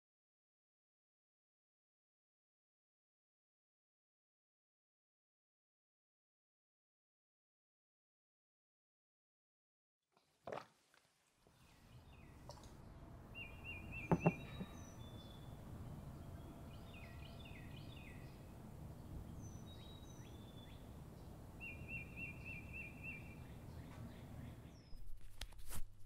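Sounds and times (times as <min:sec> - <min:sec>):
small birds chirping: 0:11.5 - 0:25.0
steady low hum: 0:11.8 - 0:24.9.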